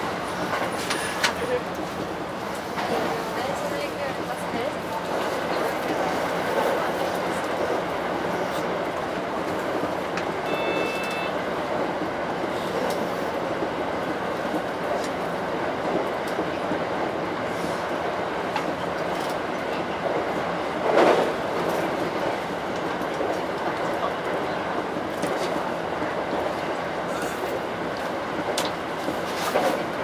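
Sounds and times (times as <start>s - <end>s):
train wheels rumbling on rail: 0.0s - 30.0s
short beep: 10.4s - 11.4s.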